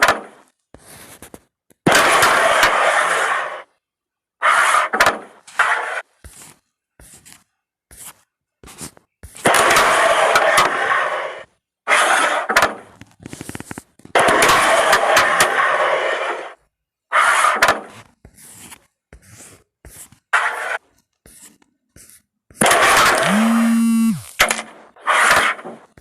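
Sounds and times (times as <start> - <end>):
pieces sliding across board: 4.4 - 13.9, 14.5 - 22.1.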